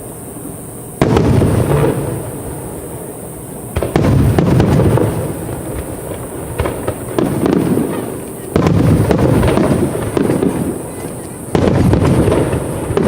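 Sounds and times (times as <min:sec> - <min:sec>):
rolling echo with crackling: 0:00.0 - 0:13.0
firework shells booming: 0:01.0 - 0:13.0.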